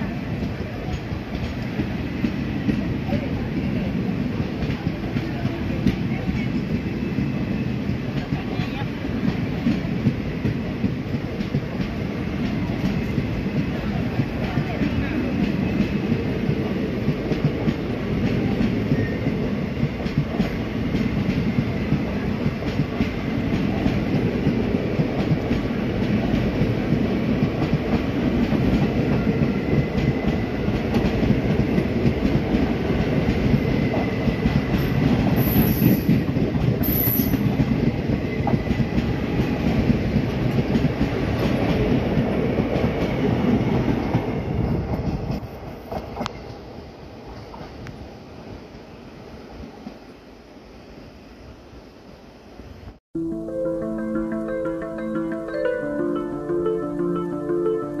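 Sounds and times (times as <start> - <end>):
train wheels rumbling and clattering: 0.0 - 48.1.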